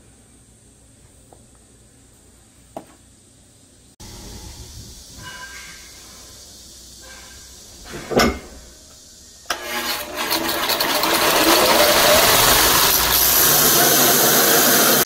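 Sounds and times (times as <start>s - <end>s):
belt grinder running: 9.5s - 15.0s.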